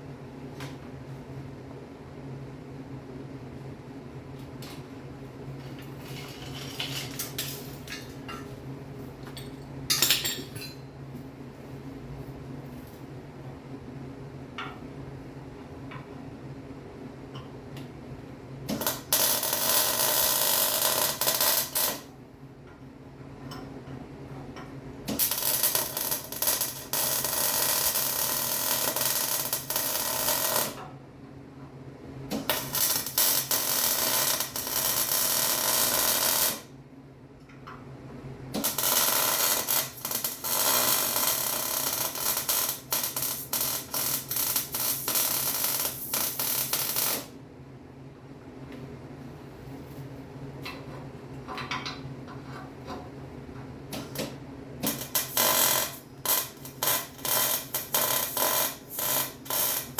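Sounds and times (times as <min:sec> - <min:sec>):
welding arc crackling: 0:18.7 - 0:22.1, 0:25.1 - 0:30.8, 0:32.4 - 0:36.6, 0:38.6 - 0:47.3, 0:54.8 - 0:59.9.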